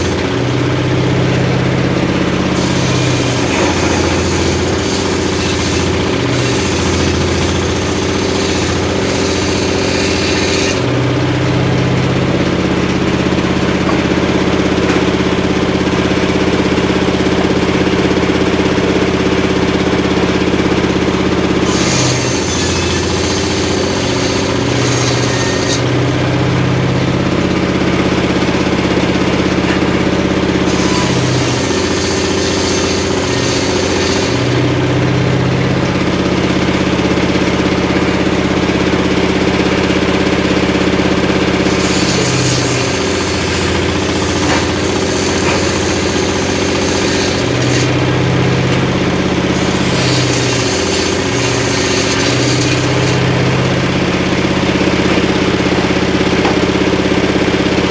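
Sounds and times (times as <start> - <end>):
engine running: 0.0 - 57.9
saw blade cutting wood hiss: 30.7 - 34.6, 41.8 - 47.9.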